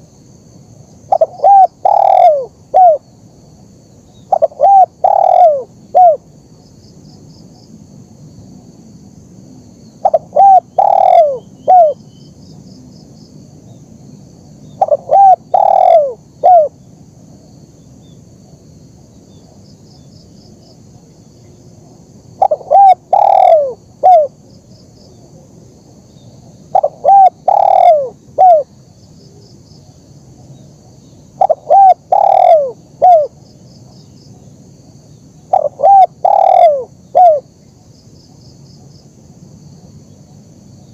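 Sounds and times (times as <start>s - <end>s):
dove cooing: 1.1s - 3.0s, 4.3s - 6.3s, 10.0s - 12.0s, 14.8s - 16.8s, 22.4s - 24.4s, 26.7s - 28.7s, 31.3s - 33.4s, 35.5s - 37.5s.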